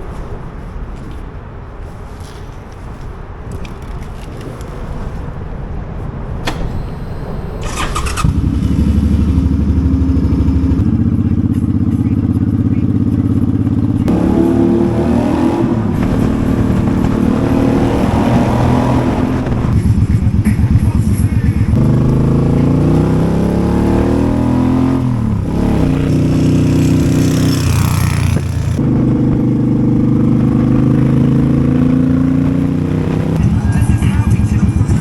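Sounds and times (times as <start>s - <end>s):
motorcycle engine cranking: 6.4s - 10.9s
motorcycle engine idling: 6.8s - 14.4s, 18.6s - 32.4s, 33.1s - 35.0s.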